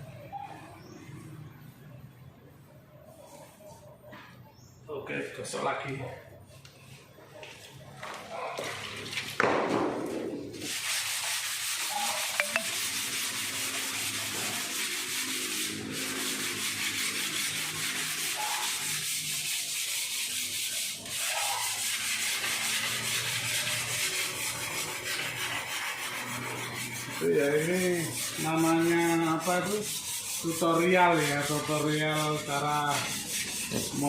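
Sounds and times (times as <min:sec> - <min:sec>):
sandpaper rubbing on filler: 0:10.5 - 0:34.0.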